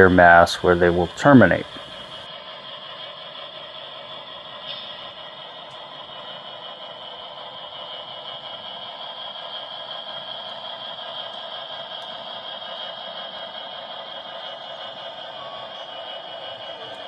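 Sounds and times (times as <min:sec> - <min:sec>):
model train engine sound from speaker: 0:00.0 - 0:17.0
wheels rattling on track: 0:00.0 - 0:17.0.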